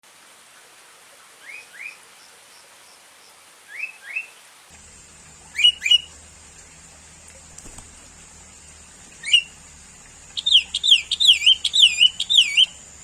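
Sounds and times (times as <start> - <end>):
steady hiss: 0.0 - 13.0
bird whistled calls: 3.7 - 4.3, 5.5 - 6.1, 9.2 - 9.6, 10.3 - 12.9.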